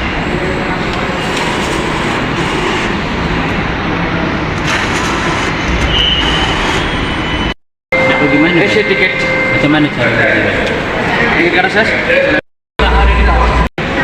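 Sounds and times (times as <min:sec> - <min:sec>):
train running: 0:00.1 - 0:07.4.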